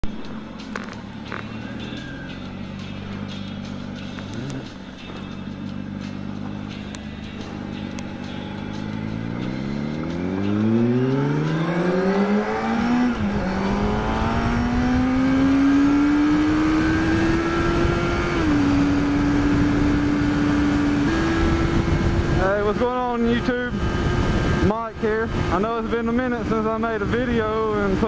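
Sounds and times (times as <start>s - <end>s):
motorcycle engine revving: 0.0s - 28.0s
wind noise: 16.4s - 28.0s.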